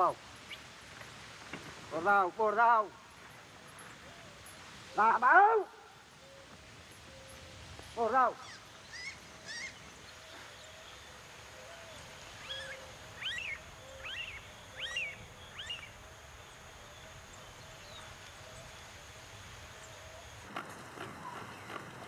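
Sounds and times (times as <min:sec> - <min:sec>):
bird calling sharp high calls: 0:03.8 - 0:16.0.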